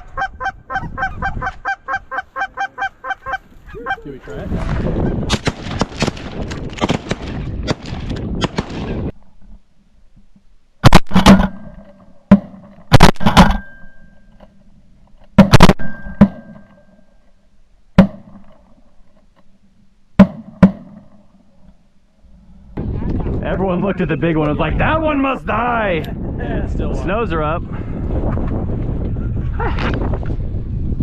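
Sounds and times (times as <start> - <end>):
geese honking: 0.0 - 5.2
shotgun shots: 5.3 - 9.0, 10.8 - 13.8, 15.4 - 16.7.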